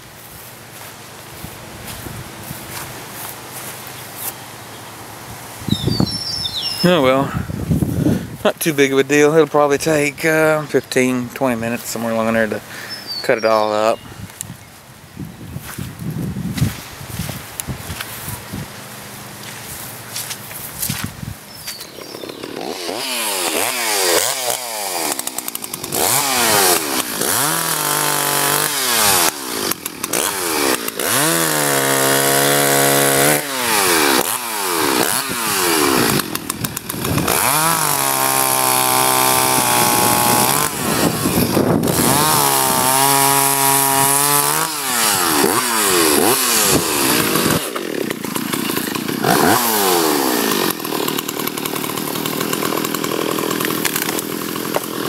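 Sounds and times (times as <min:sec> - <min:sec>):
chainsaw engine revving: 0:06.8 - 0:13.9, 0:21.6 - 0:55.0.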